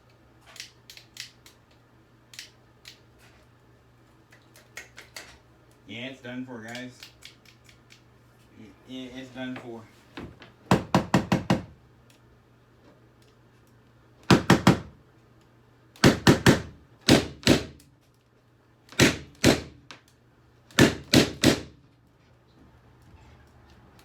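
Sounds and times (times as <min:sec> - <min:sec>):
sharp hard knocks: 0:10.7 - 0:11.7, 0:14.3 - 0:14.9, 0:16.0 - 0:17.8, 0:19.0 - 0:19.8, 0:20.8 - 0:21.8.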